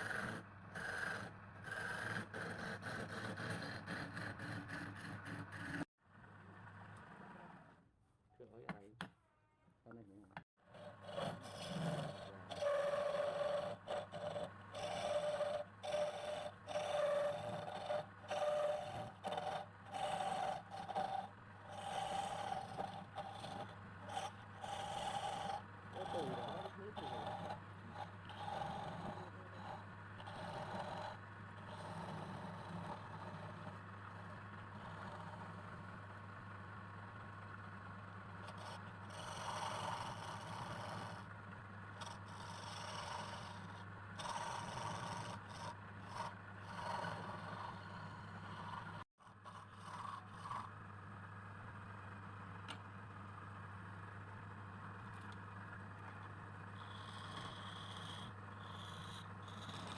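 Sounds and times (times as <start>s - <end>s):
steady low hum: 9.9s - 59.9s.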